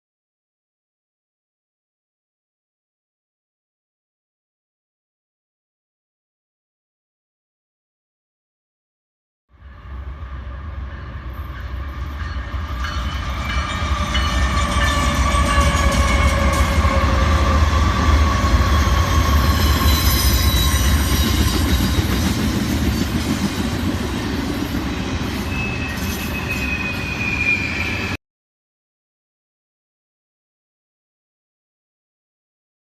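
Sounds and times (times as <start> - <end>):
high-pitched squeal: 9.6 - 23.5, 24.2 - 28.2
railcars rolling: 9.6 - 28.2.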